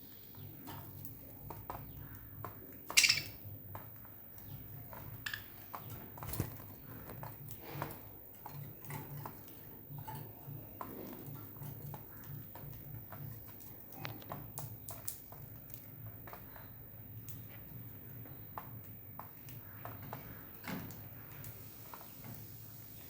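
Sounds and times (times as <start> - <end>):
beaks and feet tapping: 0.2 - 20.5
high bird chirp: 2.9 - 3.4.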